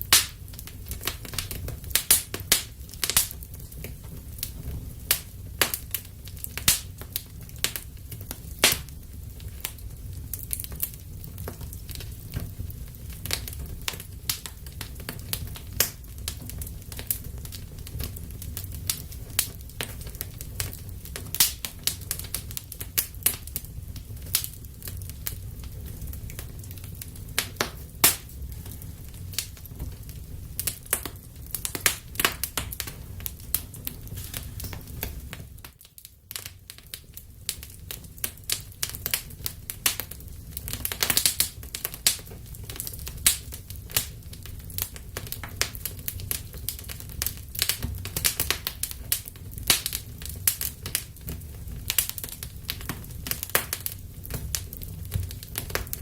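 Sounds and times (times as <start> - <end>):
low rumble of flames: 0.0 - 56.0
wood fire crackling and popping: 0.0 - 56.0.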